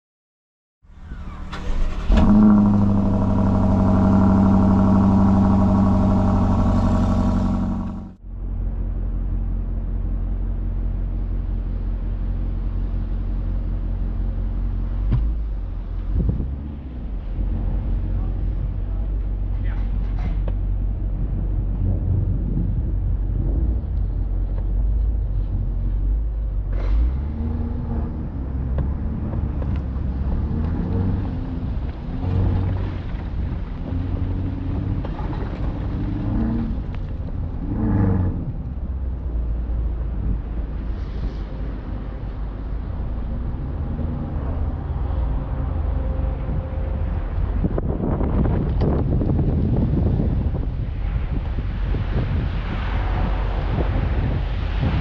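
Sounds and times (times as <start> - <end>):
road noise: 0.8 - 55.0
car engine revving: 1.0 - 8.2, 20.8 - 41.0.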